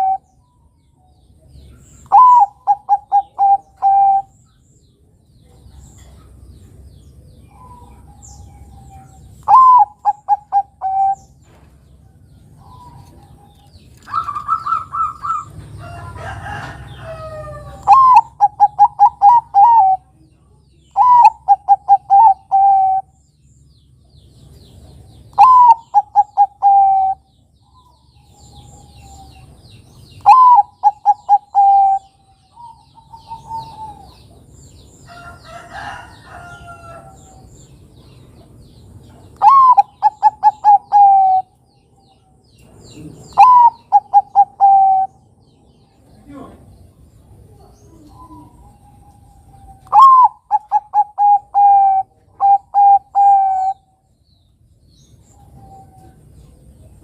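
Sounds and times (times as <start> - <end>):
dove cooing: 0.0 - 0.3, 2.0 - 4.4, 7.5 - 11.4, 12.6 - 15.6, 16.2 - 20.2, 21.0 - 23.2, 25.3 - 29.6, 30.2 - 34.5, 39.4 - 41.6, 42.9 - 45.3, 47.4 - 53.9
faint small birds chirping: 0.0 - 57.0
rough bird call: 43.2 - 45.2.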